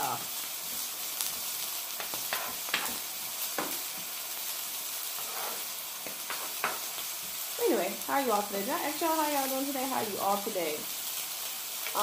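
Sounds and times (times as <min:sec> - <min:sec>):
meat and onions sizzling: 0:00.0 - 0:12.0
spatula scraping griddle: 0:02.0 - 0:03.0, 0:05.0 - 0:06.9.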